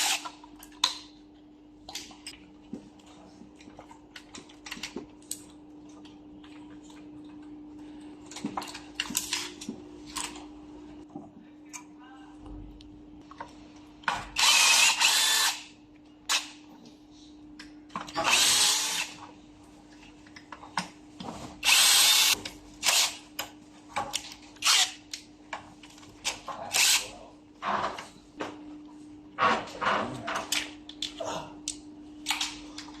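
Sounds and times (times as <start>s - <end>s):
cordless drill running: 0.0s - 0.2s, 14.4s - 15.6s, 18.2s - 19.1s, 21.6s - 23.1s.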